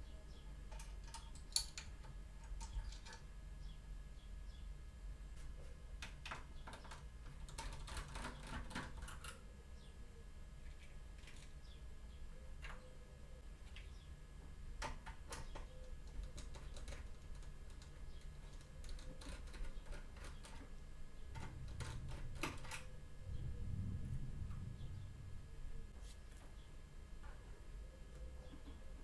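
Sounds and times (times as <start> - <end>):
low rumble of handling: 15.4 - 29.0.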